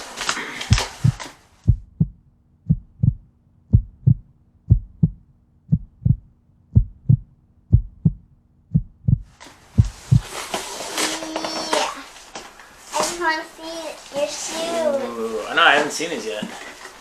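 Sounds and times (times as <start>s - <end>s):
faint low hum: 0.2s - 10.5s
heartbeat thumps: 0.7s - 10.4s.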